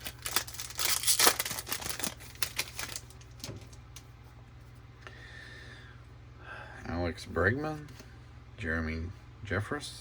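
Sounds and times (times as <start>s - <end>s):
card wrapper crinkling and clicking: 0.0s - 4.1s.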